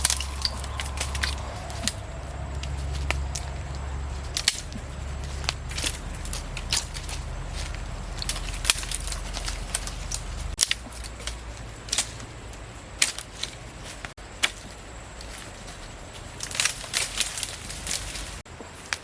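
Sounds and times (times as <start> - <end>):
low rumble: 0.0 - 12.8
sharp clicks and crackles: 0.0 - 15.6.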